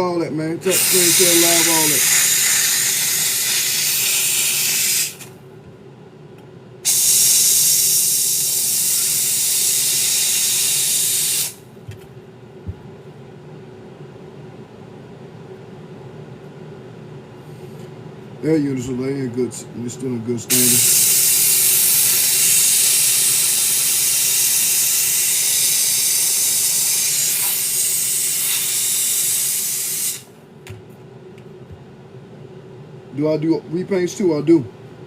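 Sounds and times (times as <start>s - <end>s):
faint steady hum: 0.0s - 35.0s
handheld steamer hissing: 0.6s - 5.3s, 6.8s - 11.6s, 20.5s - 30.4s.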